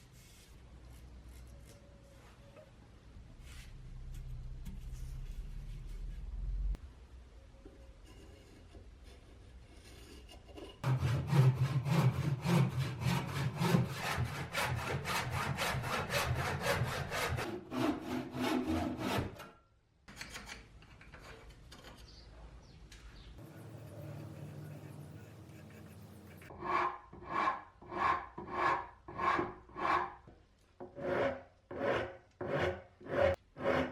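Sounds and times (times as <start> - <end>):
tool scraping wooden handle: 7.7 - 19.5, 23.4 - 30.2, 30.8 - 33.9.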